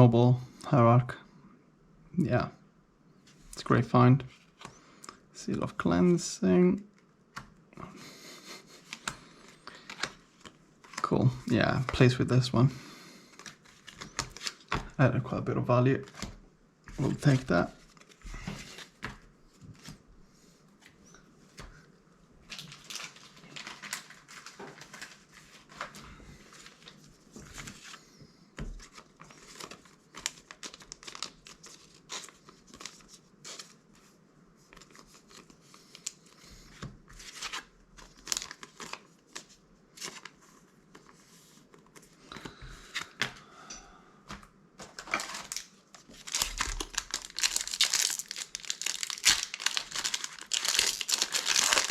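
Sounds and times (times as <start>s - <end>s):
foil wrapper crinkling and tearing: 22.5s - 25.9s, 29.3s - 33.8s, 37.3s - 39.1s, 45.0s - 51.9s.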